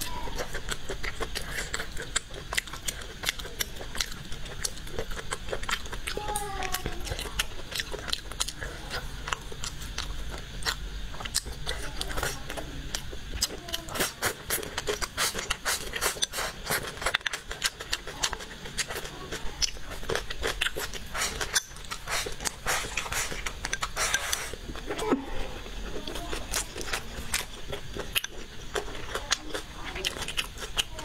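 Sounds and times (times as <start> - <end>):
chewing with wet mouth clicks: 0.0 - 31.0
chopsticks scraping ceramic bowl: 20.8 - 24.6.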